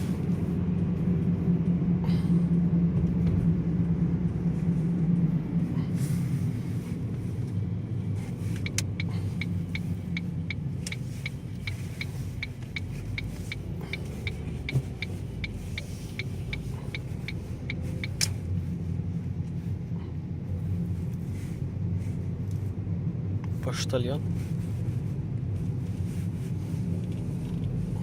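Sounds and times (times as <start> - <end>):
car engine and road rumble: 0.0 - 28.0
turn signal ticking: 8.3 - 18.7.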